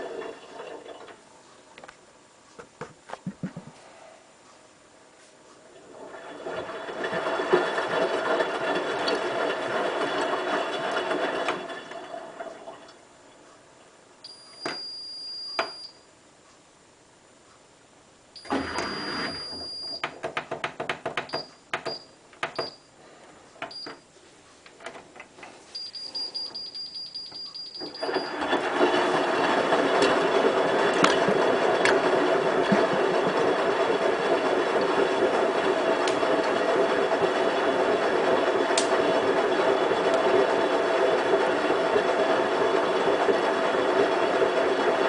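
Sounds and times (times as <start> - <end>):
washing machine running: 0.0 - 1.4, 5.2 - 13.5, 18.3 - 24.0, 24.8 - 45.0
washing machine high-pitched whines: 5.8 - 12.9, 14.2 - 16.1, 18.4 - 20.4, 21.2 - 22.9, 25.7 - 45.0
washing machine clicks: 18.4 - 22.8.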